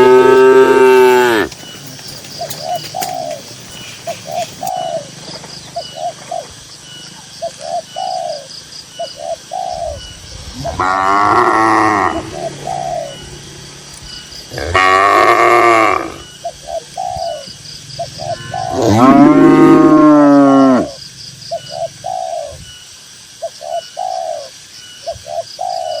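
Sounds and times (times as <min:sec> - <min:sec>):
cattle mooing: 0:00.0 - 0:01.6, 0:10.6 - 0:12.4, 0:14.5 - 0:16.2, 0:18.2 - 0:20.9
bird cooing: 0:00.0 - 0:05.1, 0:05.8 - 0:22.8, 0:23.4 - 0:26.0.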